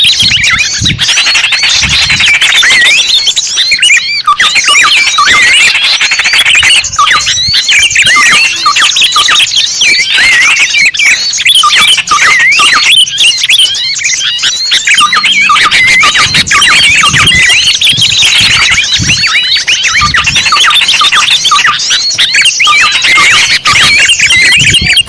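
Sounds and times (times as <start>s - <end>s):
small birds chirping and twittering: 0.0s - 25.0s.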